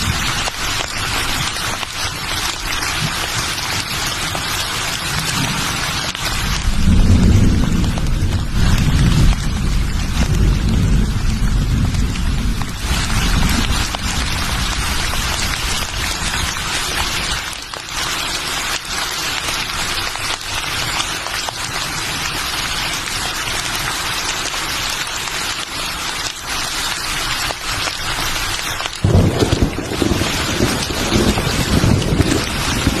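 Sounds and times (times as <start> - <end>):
steady rain falling: 0.0 - 33.0
low rumble: 6.5 - 16.6.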